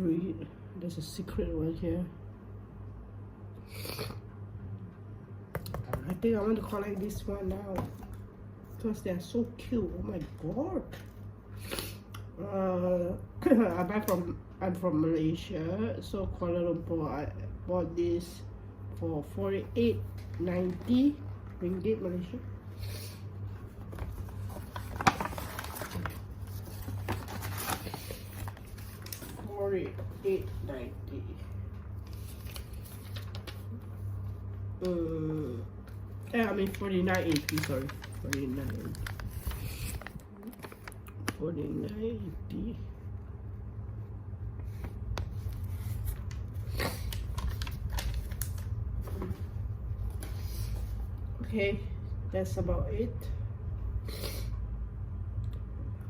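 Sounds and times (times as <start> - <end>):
steady low hum: 0.0 - 56.0
packaging rustling: 23.7 - 29.6, 36.2 - 41.2, 45.9 - 48.7.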